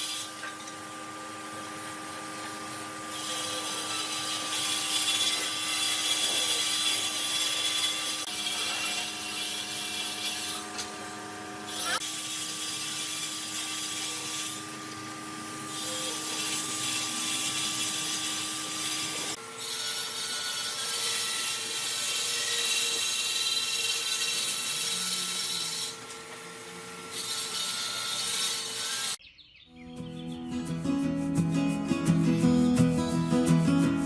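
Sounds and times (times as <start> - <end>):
power tool whining on wood: 0.0 - 29.2
music: 29.8 - 34.0.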